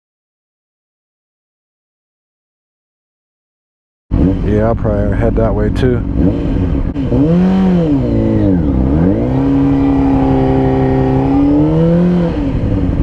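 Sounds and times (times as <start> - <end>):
motorcycle engine revving: 4.1 - 13.0.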